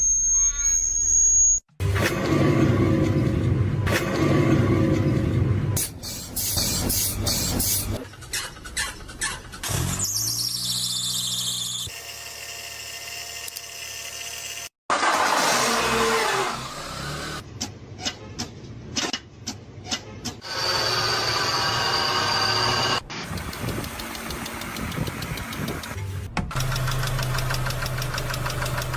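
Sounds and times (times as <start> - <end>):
sharp clicks: 23.3 - 28.9.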